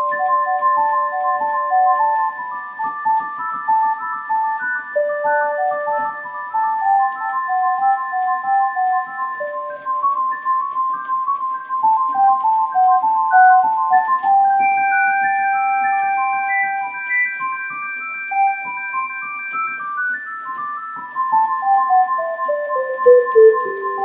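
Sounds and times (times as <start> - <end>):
electric piano melody: 0.0 - 9.5, 21.3 - 24.0.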